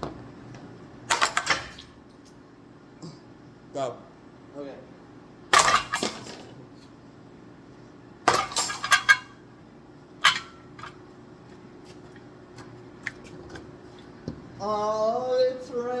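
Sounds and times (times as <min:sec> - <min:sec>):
faint steady hum: 0:00.0 - 0:16.0
objects hitting fan blades: 0:01.1 - 0:02.2, 0:05.5 - 0:06.6, 0:08.2 - 0:09.4, 0:10.2 - 0:11.0.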